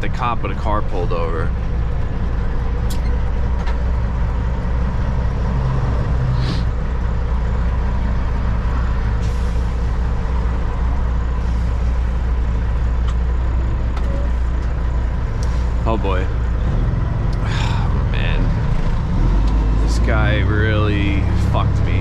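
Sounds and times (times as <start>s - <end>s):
diesel truck engine droning: 0.0s - 22.0s
air brake hiss: 6.3s - 6.7s, 9.2s - 9.8s.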